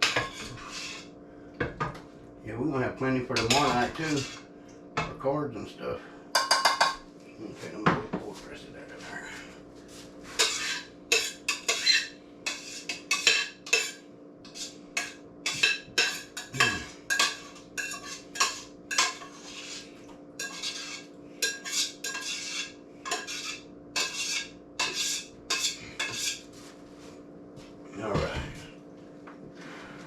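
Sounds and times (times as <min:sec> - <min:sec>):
spoon scraping a cooking pot: 0:00.0 - 0:01.1, 0:03.3 - 0:04.5, 0:10.3 - 0:26.4.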